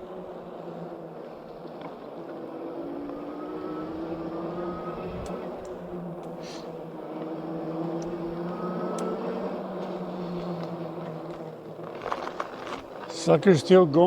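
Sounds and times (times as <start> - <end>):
electric bike motor whining: 0.0 - 14.0
rolling tyre noise: 0.0 - 14.0
light clicks: 5.2 - 6.4.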